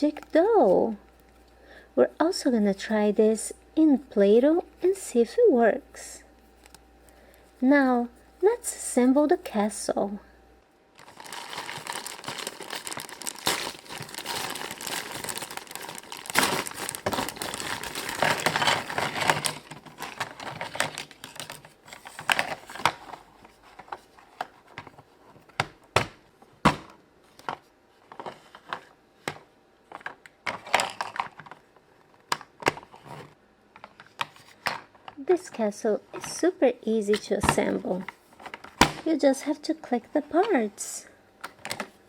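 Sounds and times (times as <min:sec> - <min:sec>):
plastic packaging crinkling: 0:10.9 - 0:23.2.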